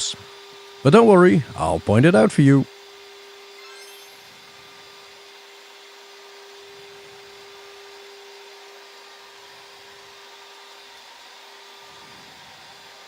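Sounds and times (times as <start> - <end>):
steady hum: 0.9 - 2.7.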